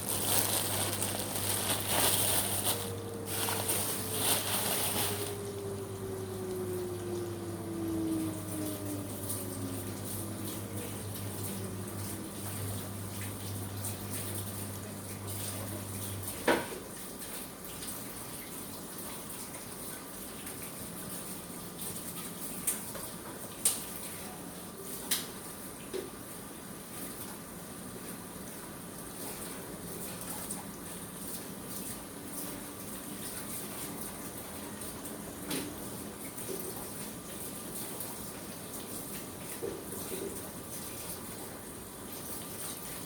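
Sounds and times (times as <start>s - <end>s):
low hum: 0.0s - 16.2s
water running from tap: 0.0s - 24.2s.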